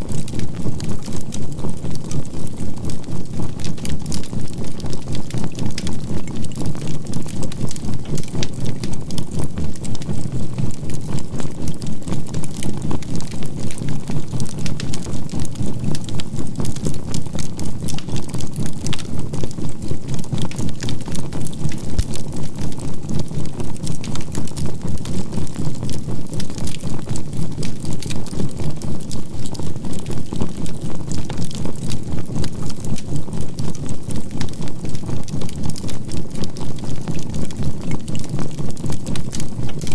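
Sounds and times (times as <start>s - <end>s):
campfire charcoal crackling: 25.0s - 39.9s.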